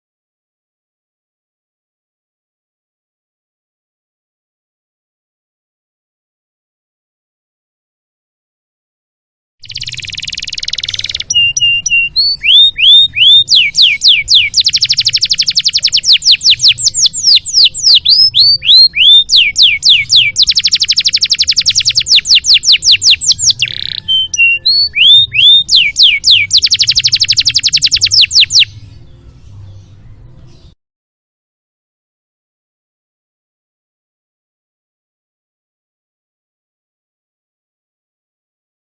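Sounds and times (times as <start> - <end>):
canary singing with trills: 9.6 - 30.8.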